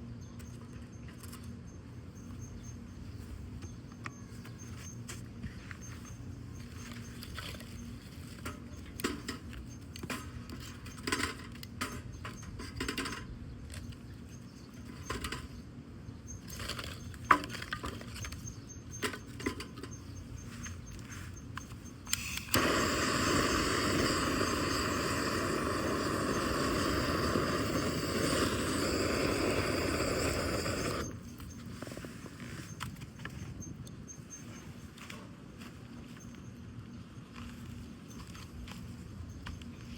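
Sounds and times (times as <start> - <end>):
loud rushing hiss: 22.5 - 31.2
wood fire crackling and snapping: 22.6 - 31.2.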